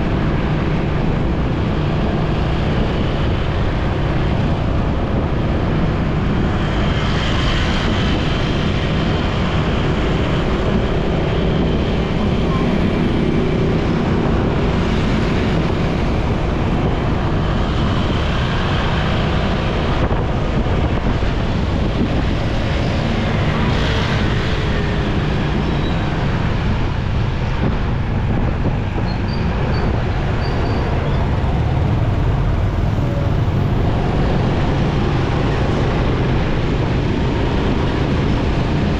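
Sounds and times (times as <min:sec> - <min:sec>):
city traffic: 0:00.0 - 0:38.9
motorcycle engine rumble: 0:09.6 - 0:38.9.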